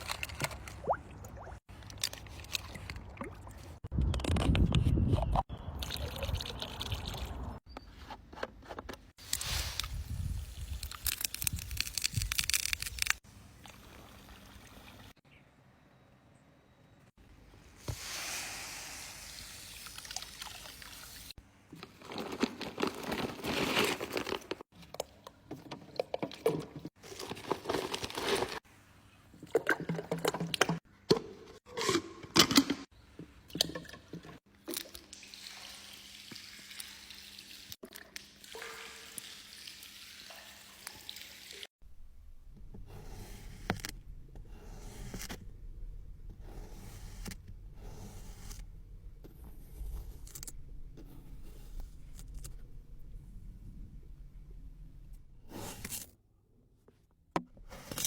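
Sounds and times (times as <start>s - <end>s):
liquid pouring and trickling: 18.0s - 21.4s, 34.7s - 41.7s.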